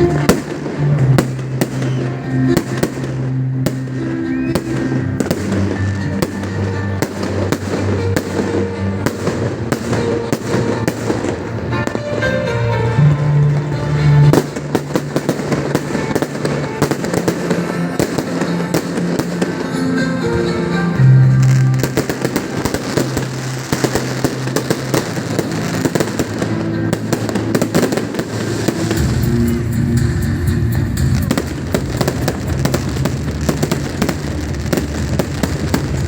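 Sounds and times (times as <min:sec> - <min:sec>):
fireworks crackling and banging: 0:00.0 - 0:36.0
music with held bass notes: 0:11.7 - 0:14.4, 0:20.2 - 0:22.2, 0:29.0 - 0:36.0.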